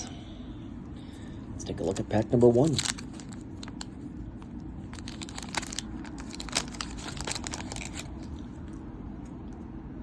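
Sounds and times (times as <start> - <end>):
waxed paper tearing and crinkling: 2.6 - 8.4.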